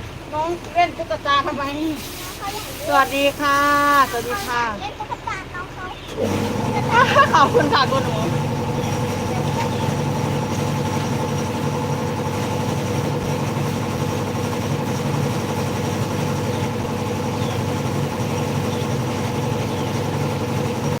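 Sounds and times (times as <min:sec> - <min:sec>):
machine humming: 0:06.1 - 0:21.0.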